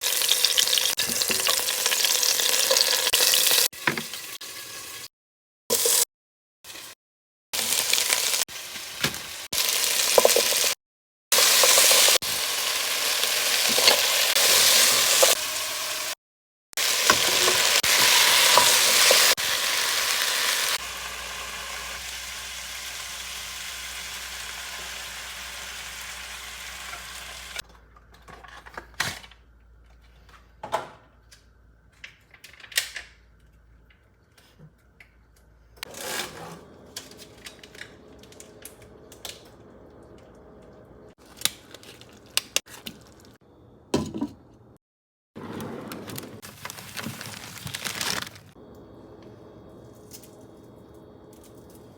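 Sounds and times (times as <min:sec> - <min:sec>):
food sizzling in a pan: 0:00.0 - 0:05.1, 0:07.6 - 0:10.8, 0:11.4 - 0:16.2, 0:16.8 - 0:27.6.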